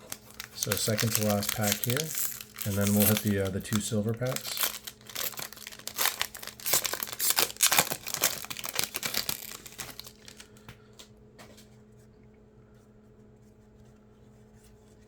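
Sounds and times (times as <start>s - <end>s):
card pack wrapper tearing: 0.0s - 10.6s.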